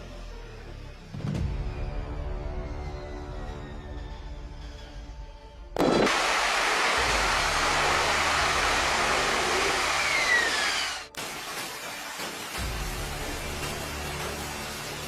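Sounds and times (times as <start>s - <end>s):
jet engine roaring: 5.8s - 11.1s
falling jet whine: 5.8s - 11.2s.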